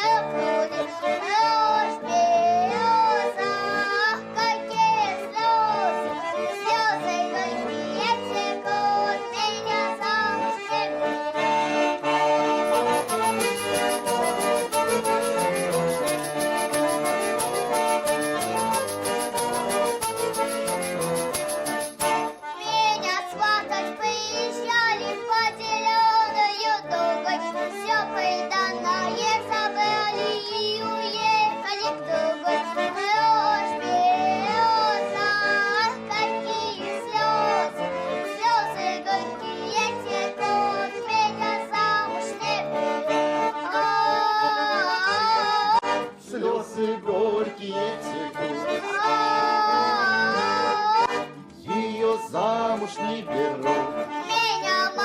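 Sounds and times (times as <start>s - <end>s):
button accordion folk tune: 0.0s - 55.0s.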